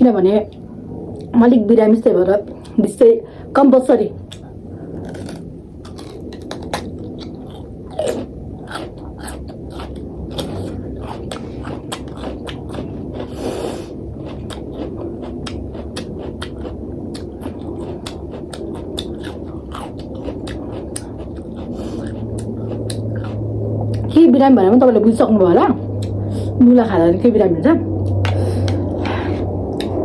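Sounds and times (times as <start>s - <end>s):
person chewing food: 4.2s - 24.1s, 25.9s - 26.4s, 28.0s - 30.0s.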